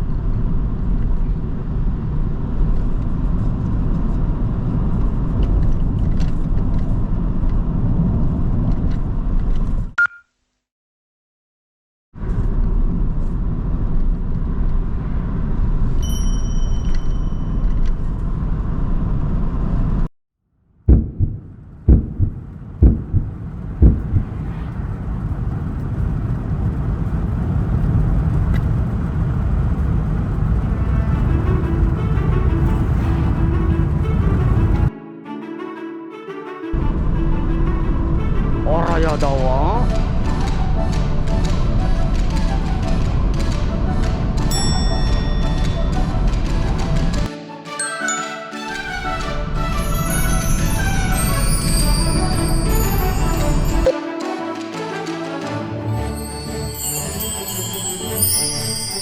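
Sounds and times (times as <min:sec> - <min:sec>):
sharp knocks: 0:20.9 - 0:24.3
car road and engine rumble: 0:21.4 - 0:34.9.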